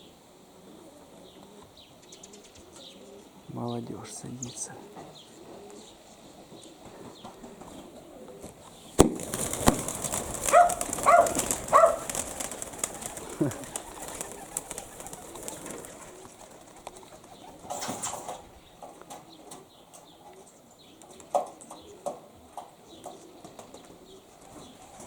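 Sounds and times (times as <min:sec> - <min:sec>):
short pigeon calls: 0:04.5 - 0:25.0
sharp wing clap: 0:09.0 - 0:16.0
pigeon wings flapping: 0:09.0 - 0:18.4, 0:24.4 - 0:25.0.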